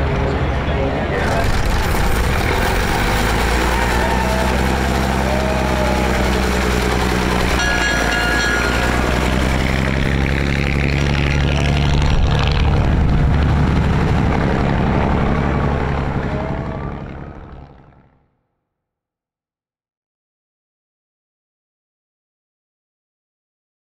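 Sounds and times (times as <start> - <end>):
propeller aircraft engines droning: 0.0 - 18.0.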